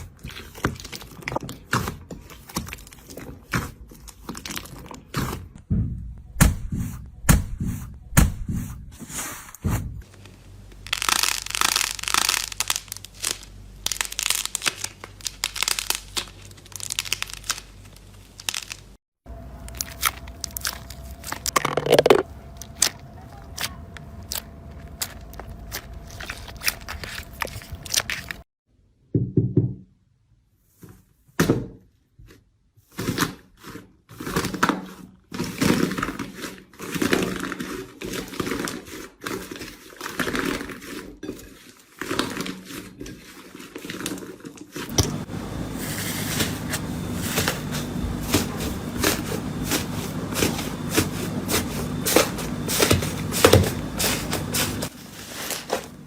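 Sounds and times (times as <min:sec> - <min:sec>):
slime squelching and popping: 0:10.8 - 0:18.9.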